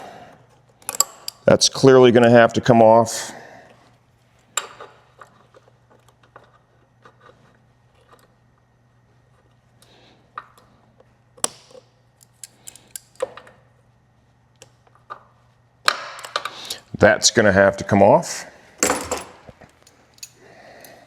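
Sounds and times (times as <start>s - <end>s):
tools and parts clicking: 0.8s - 1.5s, 11.4s - 13.6s, 15.9s - 16.8s, 18.8s - 21.0s.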